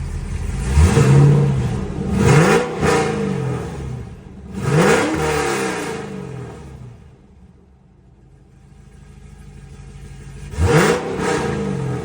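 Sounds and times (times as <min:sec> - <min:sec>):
car engine revving: 0:00.0 - 0:07.4, 0:09.6 - 0:12.0.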